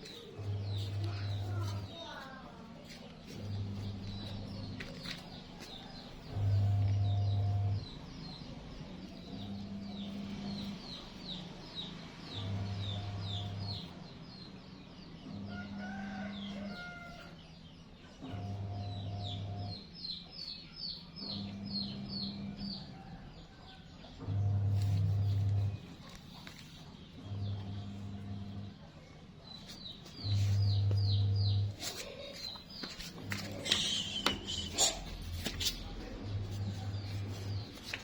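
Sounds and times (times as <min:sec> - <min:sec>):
small birds cheeping: 0:00.0 - 0:38.0.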